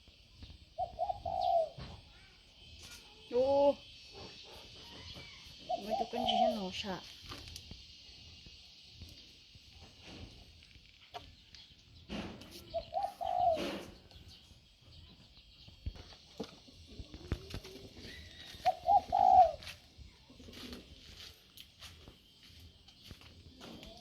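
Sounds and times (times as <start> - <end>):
dove cooing: 0.7 - 2.1, 3.5 - 7.0, 12.6 - 14.1, 16.5 - 21.4.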